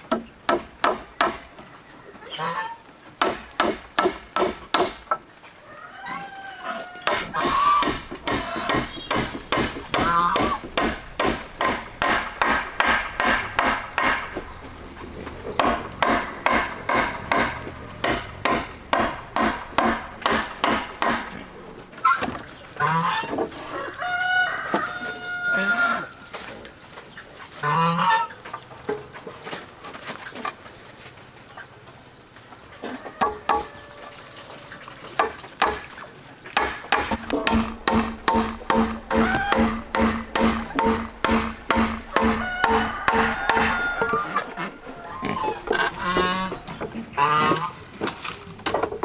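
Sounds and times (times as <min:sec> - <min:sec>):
hammering on wood: 0:00.1 - 0:01.4, 0:03.2 - 0:05.2, 0:07.0 - 0:14.5, 0:15.6 - 0:21.4, 0:33.2 - 0:33.7, 0:35.2 - 0:35.9, 0:36.6 - 0:44.2
chickens clucking: 0:05.0 - 0:49.0.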